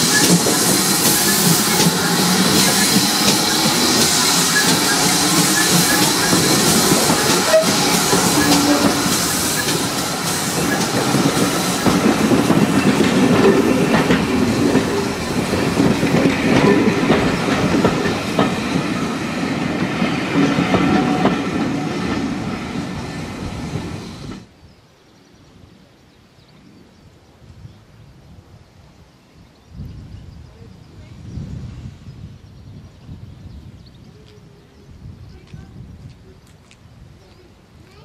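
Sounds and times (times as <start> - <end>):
wheels clicking over rail joints: 0.0 - 19.0
train coaches rolling past: 0.0 - 24.5
faint outdoor background: 0.0 - 38.0.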